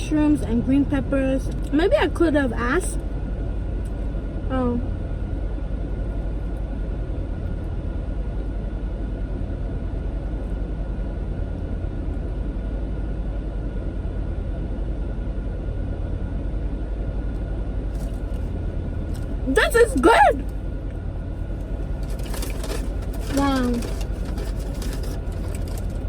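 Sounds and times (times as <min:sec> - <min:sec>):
faint constant whine: 0:00.0 - 0:26.0
steady low rumble: 0:00.0 - 0:26.0.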